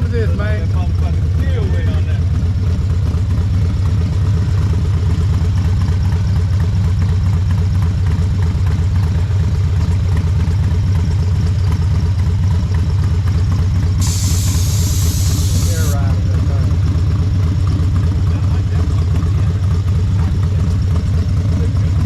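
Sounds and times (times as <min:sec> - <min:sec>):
motorcycle engine idling: 0:00.0 - 0:22.0
brief hiss: 0:14.0 - 0:16.0.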